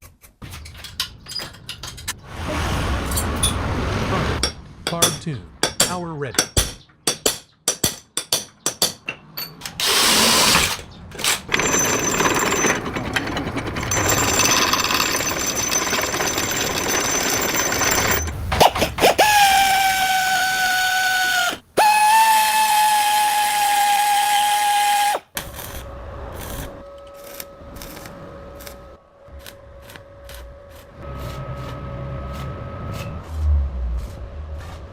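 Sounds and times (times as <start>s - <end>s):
power tool grinding metal: 11.6s - 25.2s
power tool high whine: 19.2s - 25.2s.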